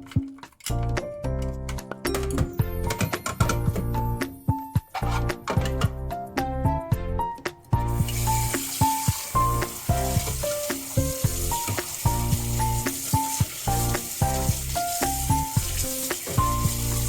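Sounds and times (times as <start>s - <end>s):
light melodic music: 0.0s - 17.0s.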